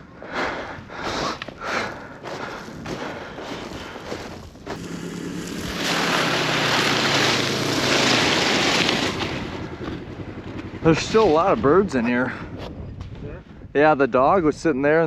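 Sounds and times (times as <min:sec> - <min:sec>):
vehicle engine humming: 0:00.0 - 0:13.7
wind on microphone: 0:10.8 - 0:15.0.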